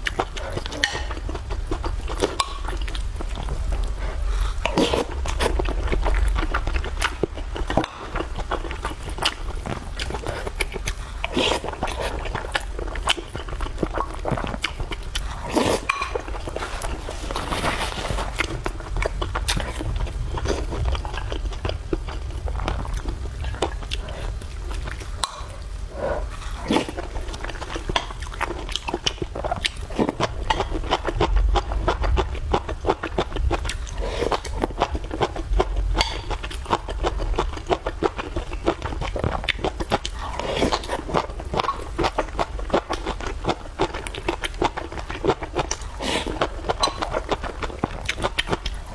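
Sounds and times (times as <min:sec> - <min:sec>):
person chewing and smacking: 0:00.0 - 0:48.9
steady low hum: 0:00.0 - 0:48.9
slurps: 0:02.2 - 0:05.8, 0:09.2 - 0:18.8.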